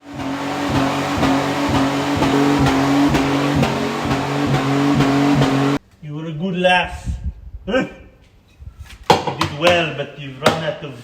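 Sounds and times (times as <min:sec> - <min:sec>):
car engine revving high: 0:00.0 - 0:05.8.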